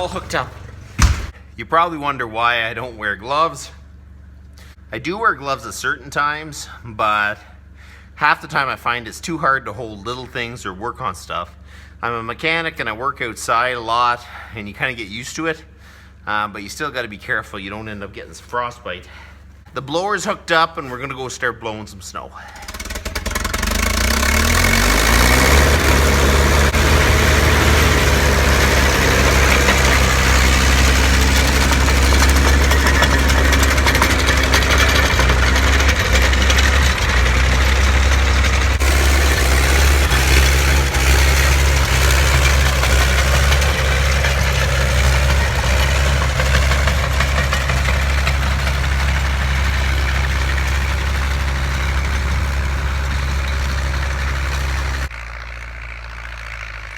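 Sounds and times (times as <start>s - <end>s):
tractor engine revving: 0.0s - 1.4s, 22.4s - 56.9s.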